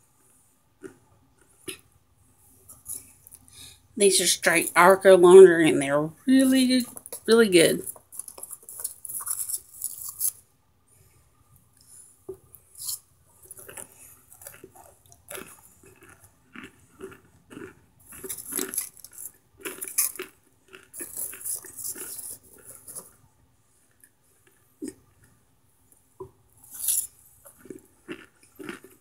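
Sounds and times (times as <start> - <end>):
crunching and chewing: 0.0 - 1.9, 6.9 - 10.5, 11.7 - 29.0.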